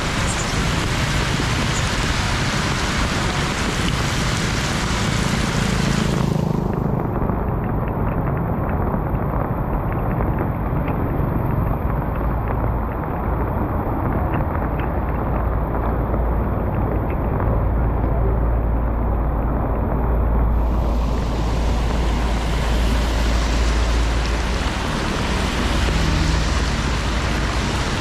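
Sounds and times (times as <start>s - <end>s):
floodwater rushing: 0.0s - 7.1s, 20.5s - 28.0s
wind buffeting microphone: 0.0s - 28.0s.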